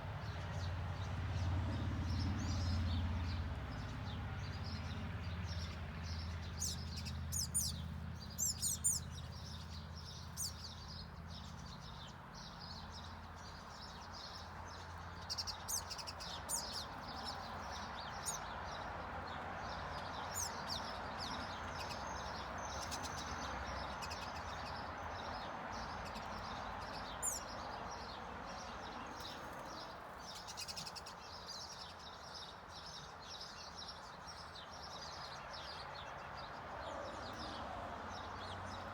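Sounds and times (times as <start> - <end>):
finches chirping: 6.4 - 18.5, 20.3 - 24.8, 25.7 - 28.0.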